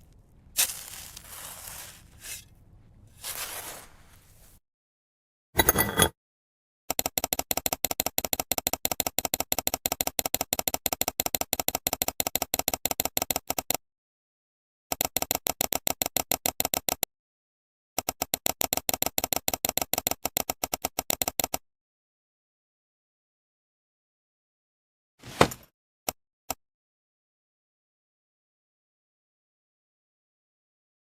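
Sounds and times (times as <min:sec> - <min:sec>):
rapid clicking taps: 0:06.9 - 0:13.8.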